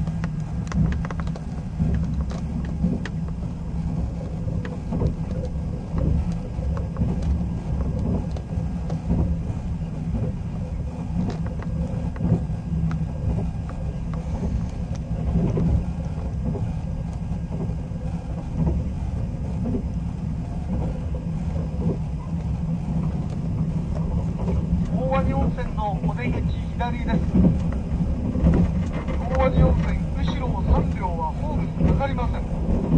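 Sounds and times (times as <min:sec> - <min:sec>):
light clicks and knocks: 0:00.0 - 0:09.4, 0:20.7 - 0:32.9
train low rumble: 0:00.0 - 0:32.9.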